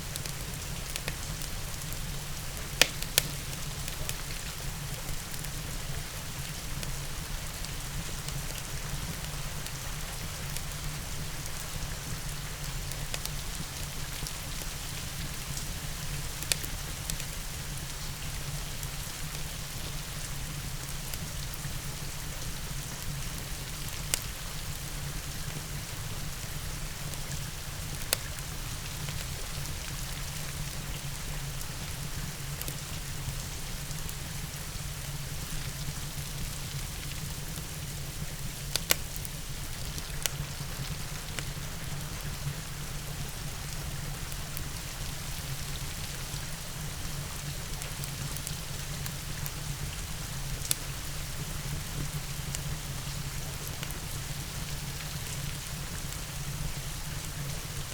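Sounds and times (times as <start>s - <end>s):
steady rain: 0.0s - 57.9s
fire popping: 0.2s - 5.7s, 37.5s - 42.4s
fireplace crackling: 0.2s - 5.7s, 36.5s - 43.9s.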